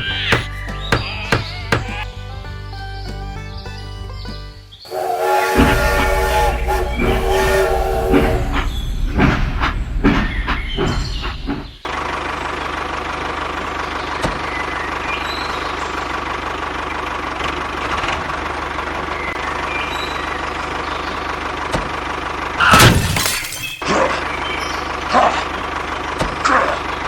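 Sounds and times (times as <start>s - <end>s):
loud crash: 4.9s - 11.6s, 22.6s - 23.8s.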